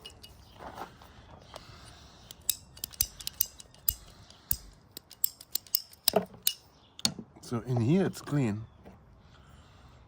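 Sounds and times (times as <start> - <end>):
sharp clicks of small parts: 2.3 - 7.1.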